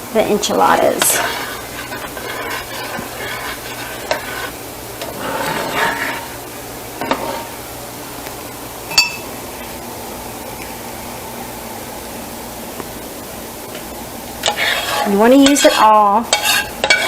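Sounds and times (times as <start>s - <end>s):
spoon scraping and stirring in pan: 0.7s - 6.4s, 7.0s - 7.6s, 14.4s - 17.0s
sharp ringing clink: 8.9s - 9.3s.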